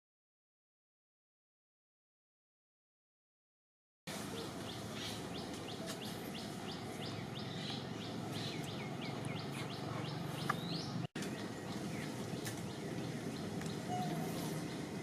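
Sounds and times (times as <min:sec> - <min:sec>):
bird chirping: 0:04.1 - 0:15.0
outdoor ambience: 0:04.1 - 0:15.0.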